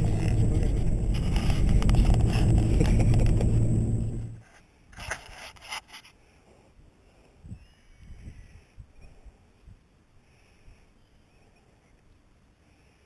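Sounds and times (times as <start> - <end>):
vehicle engine running: 0.0 - 4.4
faint rustles and knocks: 0.0 - 6.2.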